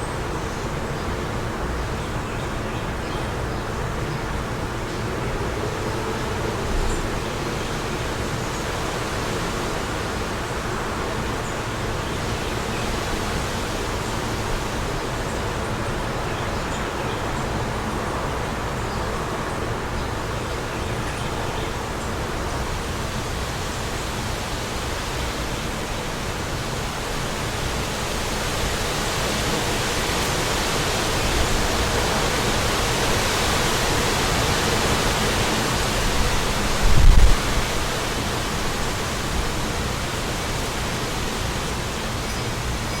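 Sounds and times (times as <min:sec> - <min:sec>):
wind blowing: 0:22.0 - 0:42.9
wind buffeting microphone: 0:27.6 - 0:41.9.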